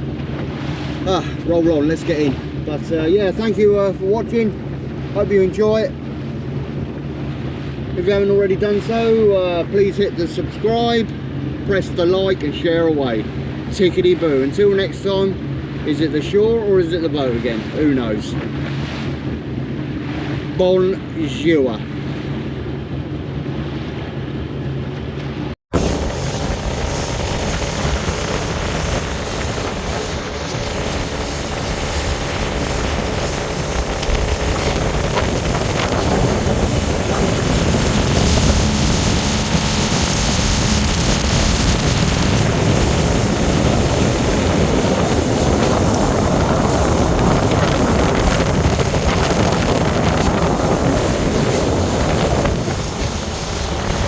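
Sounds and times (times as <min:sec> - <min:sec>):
motorboat engine running: 0:00.0 - 0:54.0
water rushing past hull: 0:00.0 - 0:54.0
wind on microphone: 0:25.7 - 0:54.0.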